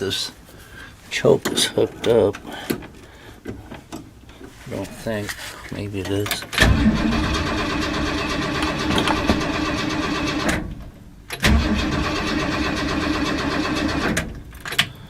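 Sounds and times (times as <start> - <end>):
engine cranking on starter: 6.6 - 14.9.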